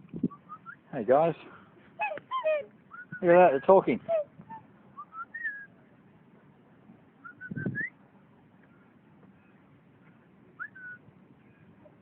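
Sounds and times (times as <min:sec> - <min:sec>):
swans calling with whistle-like toots: 0:02.0 - 0:05.7.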